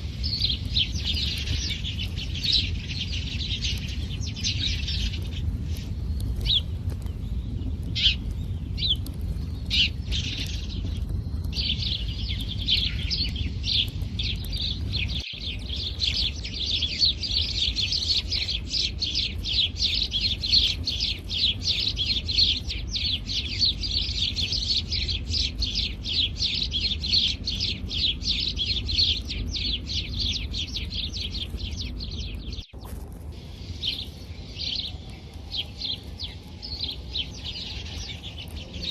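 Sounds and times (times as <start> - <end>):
low rumble: 0.0 - 38.9
sparrows chirping: 0.0 - 38.9.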